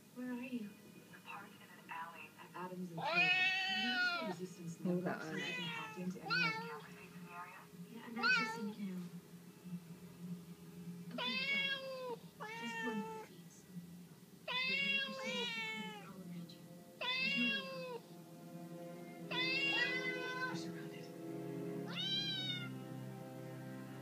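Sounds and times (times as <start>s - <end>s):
cat meowing: 3.0s - 4.4s, 5.3s - 6.8s, 8.2s - 8.7s, 11.1s - 13.3s, 14.5s - 16.1s, 17.0s - 18.0s, 19.3s - 20.7s, 21.9s - 22.7s.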